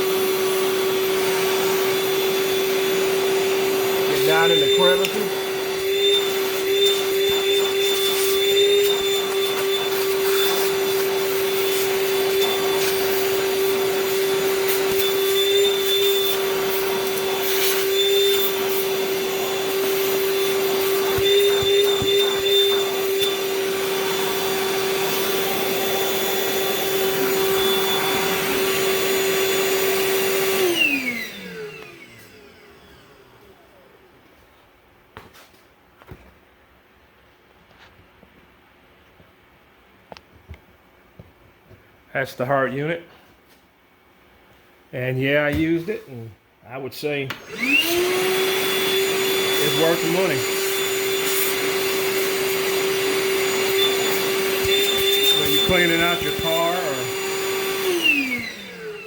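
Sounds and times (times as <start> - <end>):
vacuum motor winding down: 0.0 - 33.9, 47.3 - 59.0
shop vacuum running: 0.0 - 34.6, 45.0 - 59.0.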